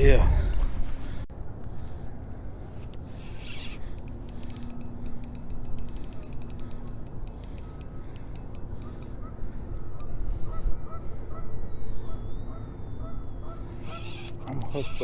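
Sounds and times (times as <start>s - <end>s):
fishing reel clicking: 3.1s - 10.1s, 13.9s - 15.0s.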